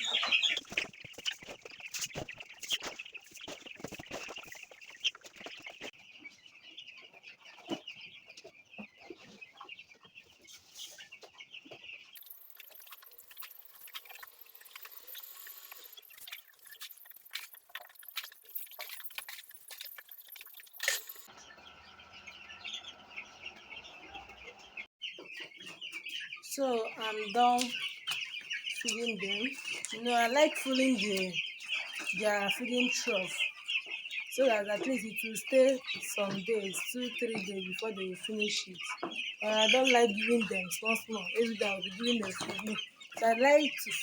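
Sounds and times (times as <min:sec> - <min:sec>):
chicks peeping: 0:00.0 - 0:44.0.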